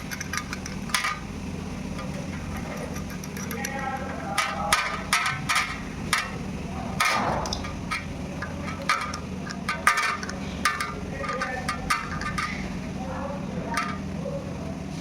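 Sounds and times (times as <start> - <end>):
metallic clinks and taps: 0.0 - 1.2, 1.9 - 6.4, 7.0 - 12.7, 13.7 - 14.1
steady low hum: 0.0 - 15.0.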